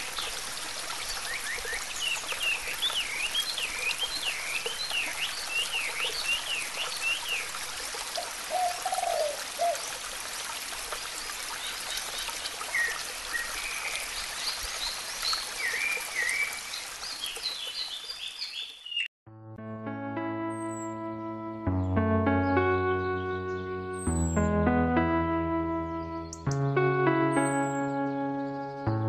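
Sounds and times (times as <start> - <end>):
trickle of running water: 0.0 - 18.9.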